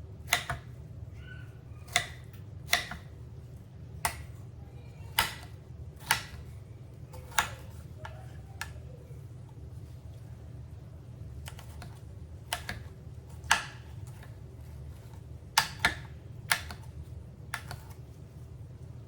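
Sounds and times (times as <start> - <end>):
knife chopping on cutting board: 0.3 - 0.7, 1.9 - 3.2, 4.0 - 4.4, 5.1 - 6.5, 7.1 - 7.8, 11.4 - 16.9, 17.5 - 18.0.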